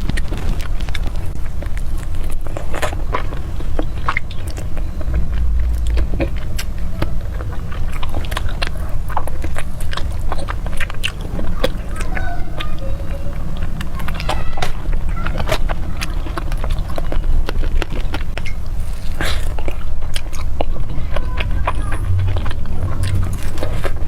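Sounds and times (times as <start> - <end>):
person chewing food: 0.0 - 24.0
low rumble: 0.8 - 11.8, 20.8 - 24.0.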